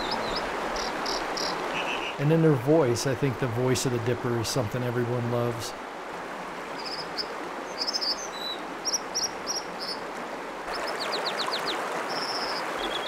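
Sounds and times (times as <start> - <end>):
bird singing: 0.0 - 2.2, 6.8 - 10.0, 10.7 - 13.0
mountain stream rushing: 0.0 - 13.0.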